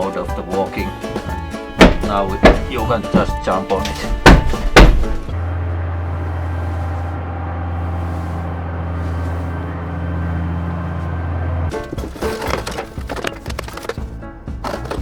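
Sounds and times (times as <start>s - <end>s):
music with low drone: 0.0s - 15.0s
feet thumping on deck hatch: 1.0s - 5.4s.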